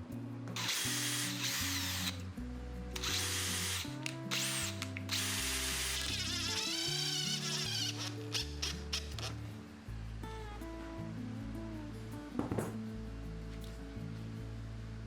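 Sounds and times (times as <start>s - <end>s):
background music with bass line: 0.0s - 15.0s
power tool whining: 0.6s - 2.2s, 3.0s - 9.3s.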